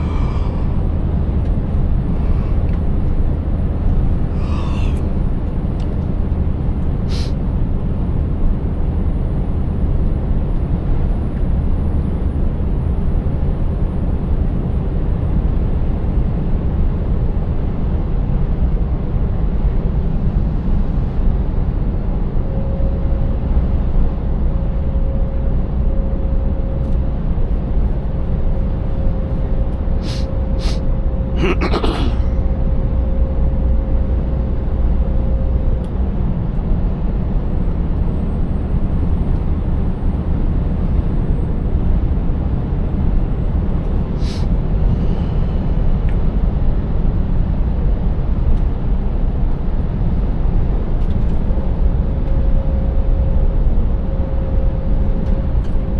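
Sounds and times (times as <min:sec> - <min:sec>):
road noise: 0:00.0 - 0:06.0, 0:30.0 - 0:30.8.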